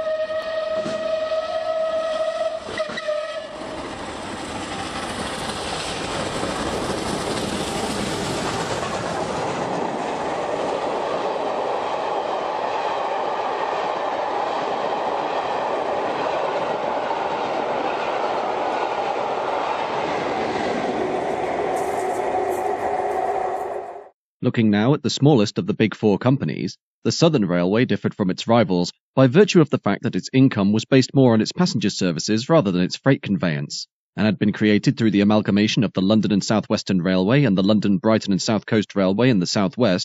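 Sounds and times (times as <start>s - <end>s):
train whistle: 0.0s - 4.0s, 19.8s - 24.1s
train coaches rushing and rattling: 0.7s - 24.0s.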